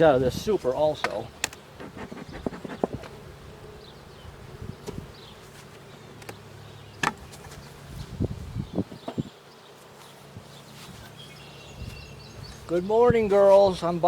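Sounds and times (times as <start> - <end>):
honeybees buzzing: 0.0 - 14.0
knocks of hive equipment: 1.0 - 3.2.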